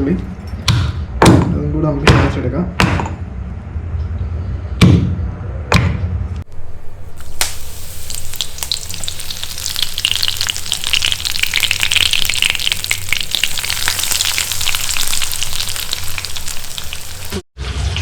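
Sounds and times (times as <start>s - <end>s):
hot oil sizzling and crackling: 6.6s - 18.0s.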